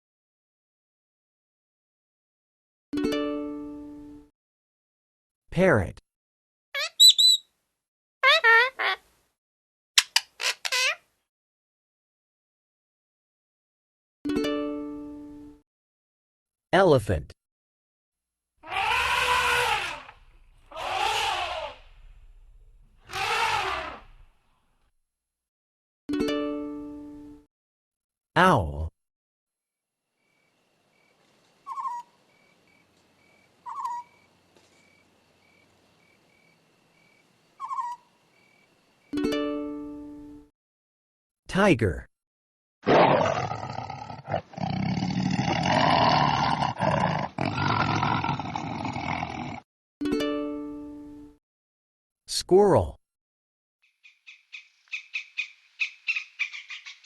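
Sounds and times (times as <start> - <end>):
elephant trumpeting: 18.6 - 22.1, 23.0 - 24.2
tiger roaring: 18.6 - 22.1, 23.0 - 24.2, 42.8 - 49.6.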